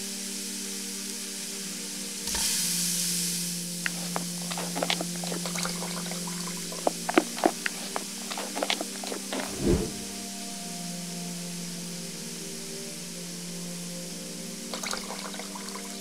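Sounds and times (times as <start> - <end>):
food sizzling in a pan: 2.2 - 9.3
stirring in a pan: 3.9 - 9.6.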